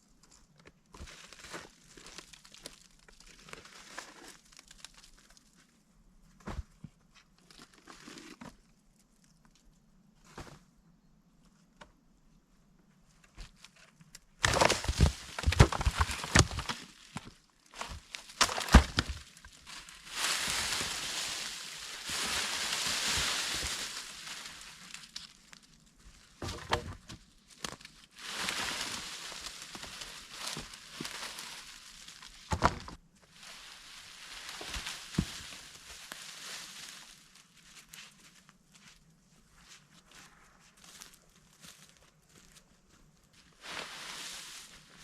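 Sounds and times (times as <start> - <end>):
material rustling and crunching: 13.4 - 40.9, 43.4 - 45.0.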